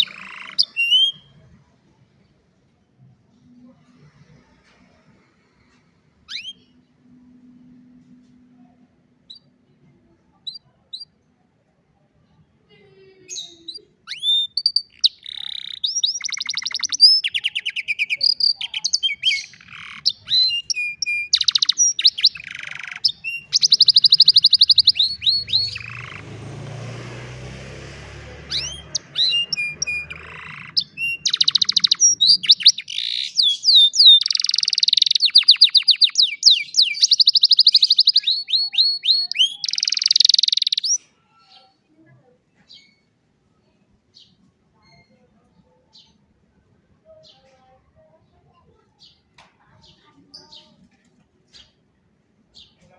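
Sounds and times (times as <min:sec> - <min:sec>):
canary singing trills: 0:00.0 - 0:01.7, 0:06.2 - 0:07.5, 0:08.6 - 0:09.7, 0:10.3 - 0:11.3, 0:13.2 - 0:41.8, 0:44.1 - 0:46.4.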